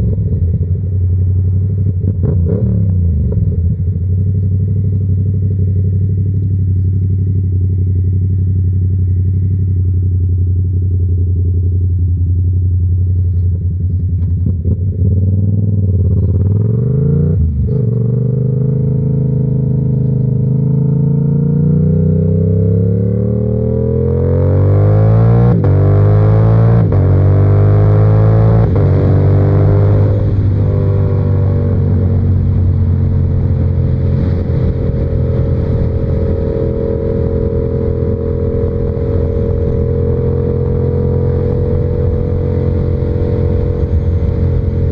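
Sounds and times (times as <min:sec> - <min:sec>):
motorcycle engine accelerating: 0:00.0 - 0:44.9
wind noise: 0:24.2 - 0:44.9.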